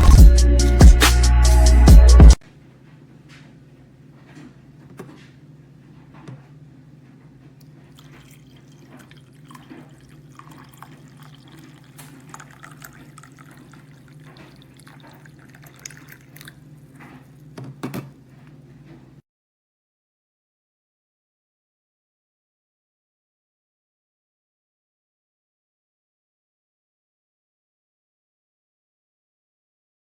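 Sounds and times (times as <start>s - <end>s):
water trickling and dripping: 7.9s - 17.5s.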